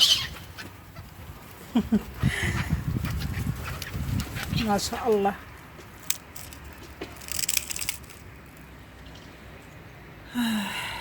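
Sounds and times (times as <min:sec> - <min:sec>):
crackling rustle: 0:03.0 - 0:08.8.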